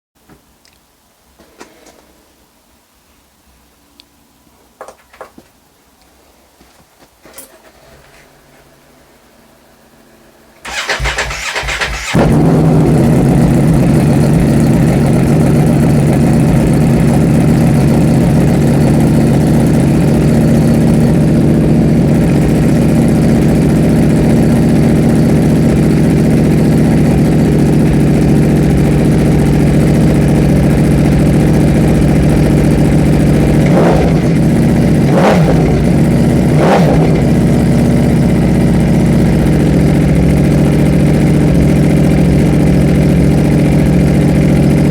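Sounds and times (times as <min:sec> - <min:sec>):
motorcycle starter cranking: 0:10.6 - 0:12.4
motorcycle engine idling: 0:10.6 - 0:44.9
motorcycle engine revving: 0:10.6 - 0:44.9.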